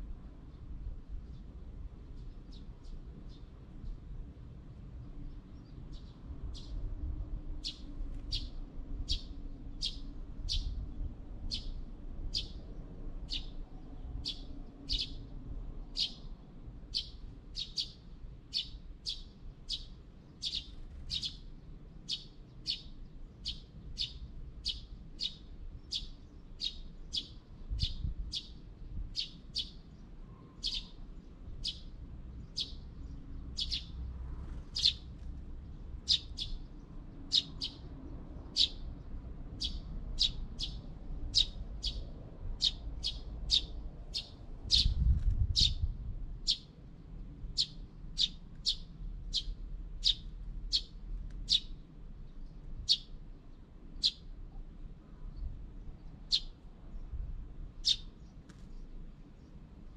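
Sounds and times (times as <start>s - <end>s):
small bird chirping: 5.3s - 6.8s, 7.6s - 10.8s, 11.5s - 12.7s, 13.3s - 13.6s, 14.2s - 15.3s, 15.9s - 16.3s, 16.9s - 46.7s, 47.6s - 53.2s, 54.0s - 54.3s, 55.3s - 57.2s, 57.8s - 59.9s.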